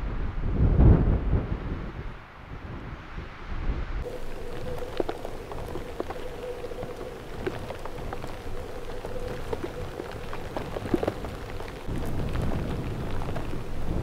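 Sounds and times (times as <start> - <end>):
drops ticking on hard surface: 4.0 - 13.6
steady hiss: 4.0 - 14.0.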